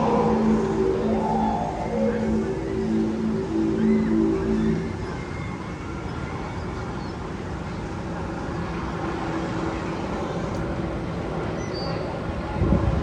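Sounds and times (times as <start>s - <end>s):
held low tone: 0.0s - 5.4s
steady rumbling: 0.0s - 6.4s.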